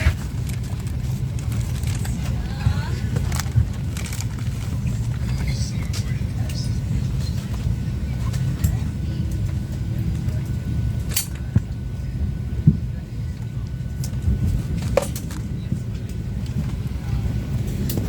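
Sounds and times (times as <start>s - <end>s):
airplane cabin rumble: 0.0s - 18.0s.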